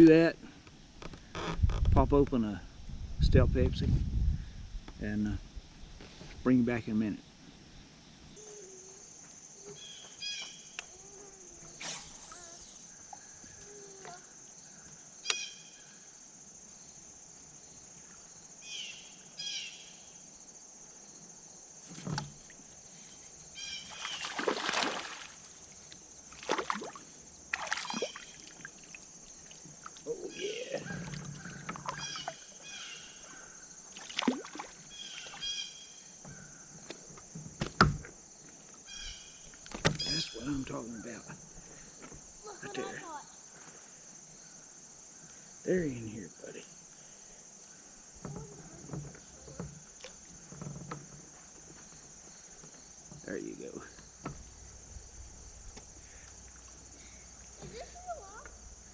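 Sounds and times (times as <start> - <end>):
high-pitched insect drone: 8.4 - 14.6
water noise: 23.7 - 32.6, 33.9 - 35.5
bird chirps and calls: 40.0 - 40.6.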